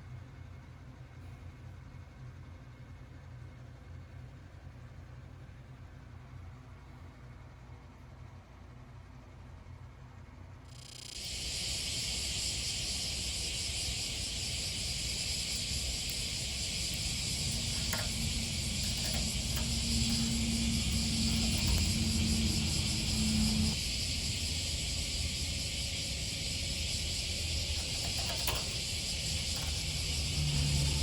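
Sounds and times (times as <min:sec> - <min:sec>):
crickets chirping: 0:10.7 - 0:31.0
low steady hum: 0:11.2 - 0:31.0.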